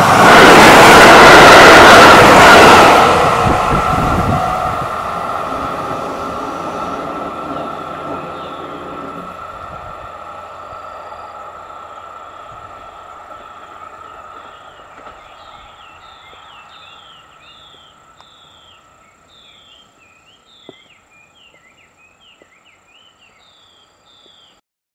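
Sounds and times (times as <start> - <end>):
diesel railcar rail noise: 0.0 - 22.9
bird chirping: 8.0 - 9.2, 13.3 - 24.6.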